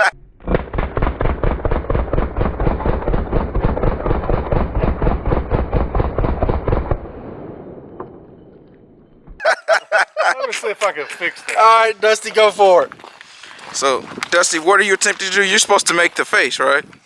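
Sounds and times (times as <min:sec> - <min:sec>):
rumble after gunfire: 0:00.4 - 0:09.4
full-auto gunfire: 0:00.6 - 0:08.3.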